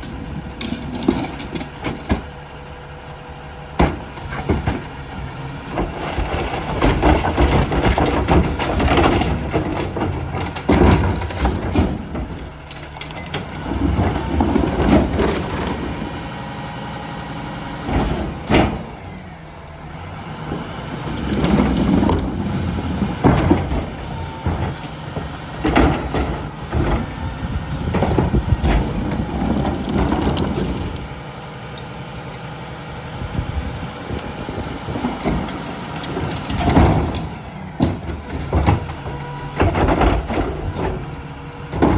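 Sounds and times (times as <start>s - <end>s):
garbage truck engine and machinery: 0.0s - 41.9s.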